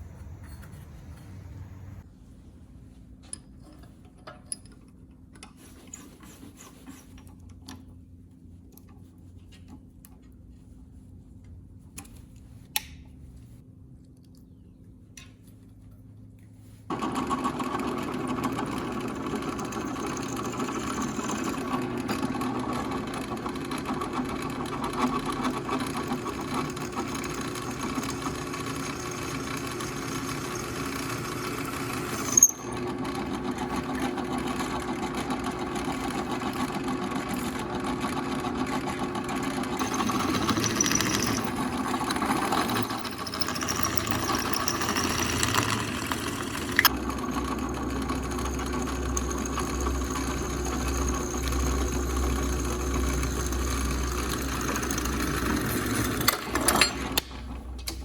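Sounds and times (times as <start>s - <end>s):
motor running steadily: 17.0s - 58.0s.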